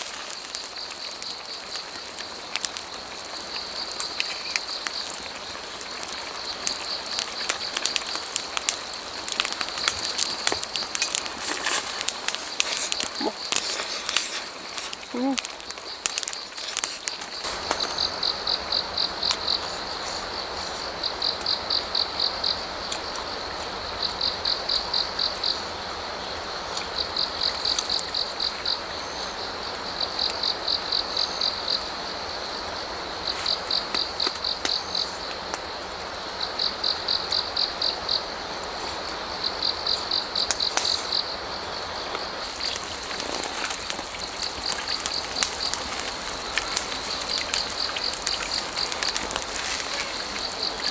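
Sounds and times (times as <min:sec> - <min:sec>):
cricket chirping: 0:00.0 - 0:50.9
stream flowing: 0:42.3 - 0:50.9.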